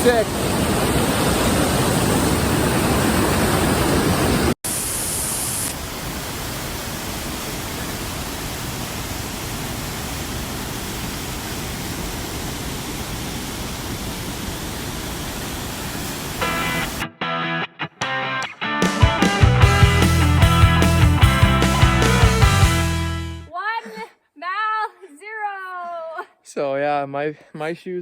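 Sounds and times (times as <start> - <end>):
waterfall rushing: 0.0 - 17.1
music: 16.4 - 23.5.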